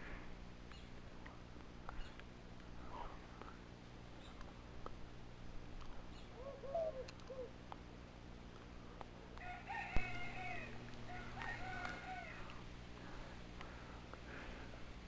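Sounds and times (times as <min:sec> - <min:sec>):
steady low hum: 0:00.0 - 0:15.0
bird calls: 0:06.1 - 0:07.5.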